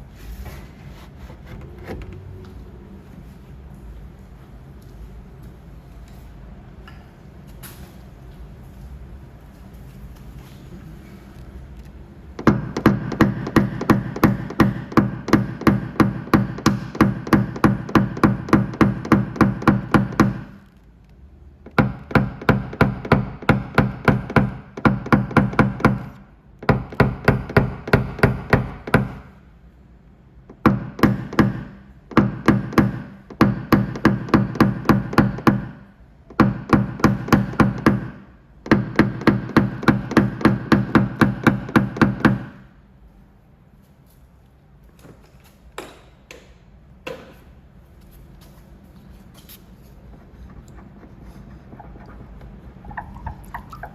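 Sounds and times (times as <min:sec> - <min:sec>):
hammer tapping on car door metal: 0:12.4 - 0:20.6, 0:21.6 - 0:29.3, 0:30.4 - 0:42.7.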